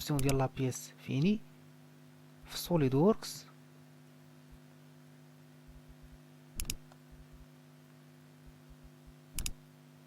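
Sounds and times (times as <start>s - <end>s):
faint steady hum: 0.0s - 10.0s
computer mouse double-clicks: 0.1s - 0.4s, 6.6s - 7.0s, 9.3s - 9.6s.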